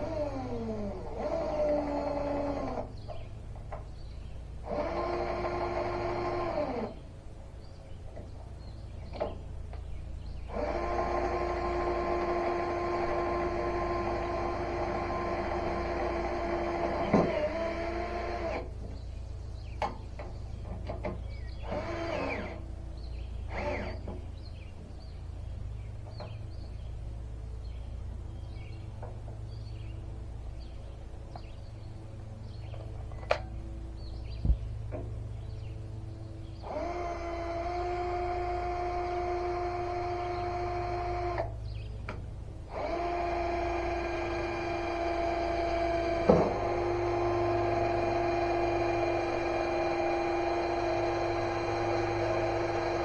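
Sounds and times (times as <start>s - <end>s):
electric drill driving screws: 0.0s - 2.9s, 4.6s - 7.0s, 10.5s - 18.7s, 21.6s - 22.6s, 23.5s - 24.0s, 36.6s - 41.5s, 42.7s - 53.0s
steady low hum: 0.0s - 53.0s.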